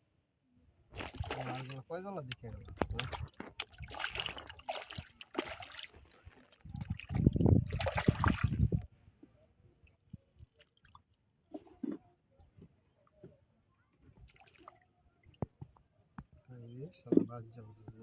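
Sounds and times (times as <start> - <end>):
water splashing beside a boat: 1.0 - 8.8.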